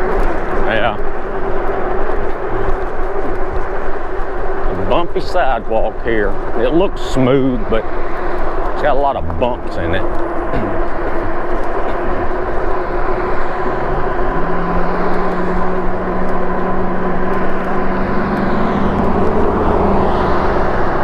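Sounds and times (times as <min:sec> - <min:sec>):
low hum: 0:00.0 - 0:21.0
wind rush: 0:06.4 - 0:21.0.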